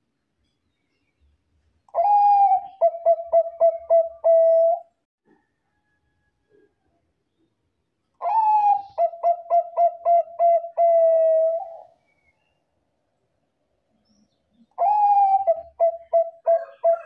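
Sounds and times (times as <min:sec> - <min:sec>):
dove cooing: 0:01.9 - 0:04.9, 0:08.2 - 0:12.0, 0:14.8 - 0:17.0.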